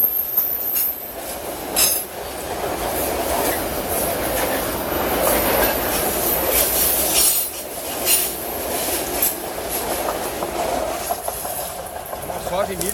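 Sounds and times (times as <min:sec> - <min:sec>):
train wheels squealing on rails: 0:00.0 - 0:02.2, 0:02.9 - 0:09.9
rail joint clacks: 0:00.0 - 0:12.9.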